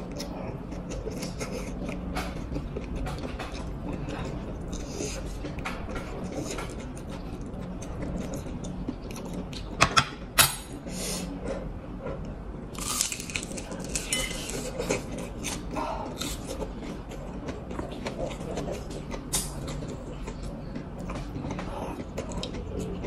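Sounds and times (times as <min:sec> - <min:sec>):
crunching crispy spring roll: 0:12.8 - 0:14.6.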